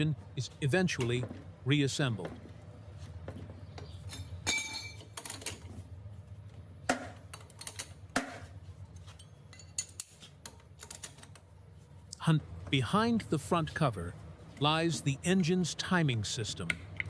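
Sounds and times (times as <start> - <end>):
hand tools clinking on metal: 4.1 - 5.6.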